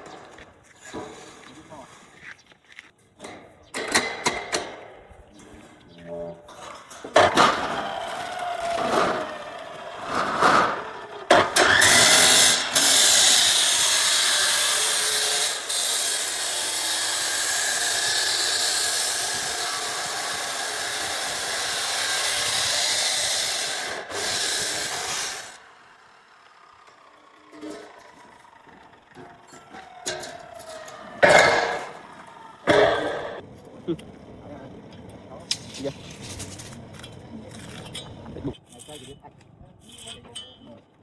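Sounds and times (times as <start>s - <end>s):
power tool whining: 6.6s - 39.2s.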